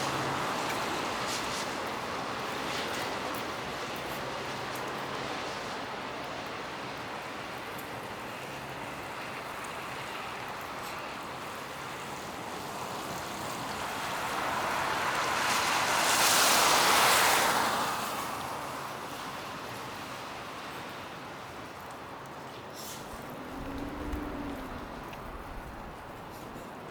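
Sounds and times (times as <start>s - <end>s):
tyres hissing on wet road: 0.0s - 26.9s
street hum: 22.2s - 26.9s.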